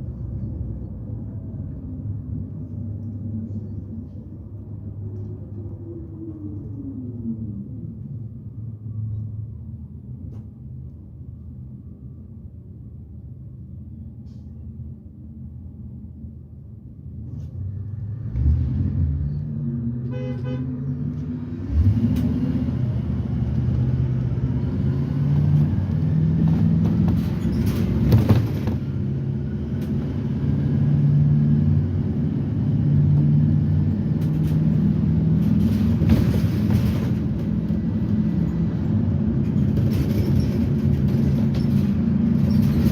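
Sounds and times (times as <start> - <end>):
bus engine idling and accelerating: 0.0 - 42.9.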